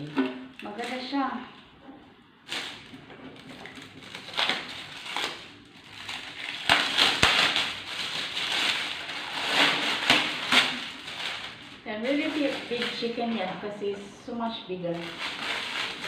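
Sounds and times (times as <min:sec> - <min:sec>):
packaging crinkling: 0:02.4 - 0:13.5, 0:14.9 - 0:16.0.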